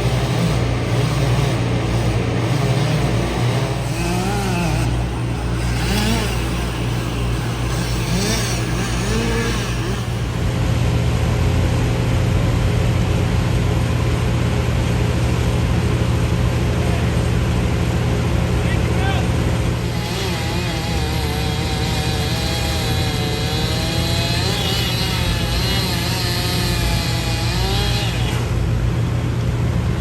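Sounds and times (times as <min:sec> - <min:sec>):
motor revving: 0:00.0 - 0:10.6, 0:19.5 - 0:28.8
heavy engine droning: 0:00.0 - 0:30.0.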